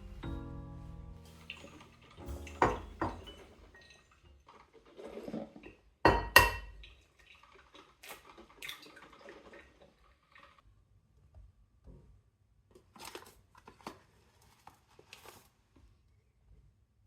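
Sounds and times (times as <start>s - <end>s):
tableware clinking: 1.4s - 4.0s, 6.1s - 6.7s.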